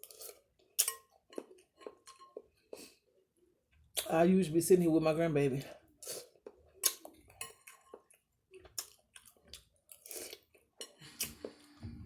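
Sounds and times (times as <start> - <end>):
person chewing food: 0.0 - 3.1, 6.0 - 12.0.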